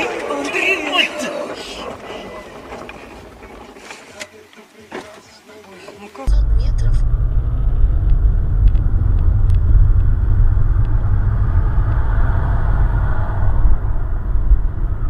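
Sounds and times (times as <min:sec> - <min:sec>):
road and engine rumble: 0:06.2 - 0:15.0.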